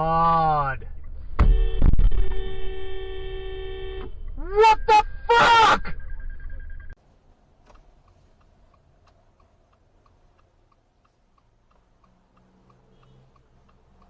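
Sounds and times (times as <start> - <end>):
faint regular ticking: 7.6 - 14.0.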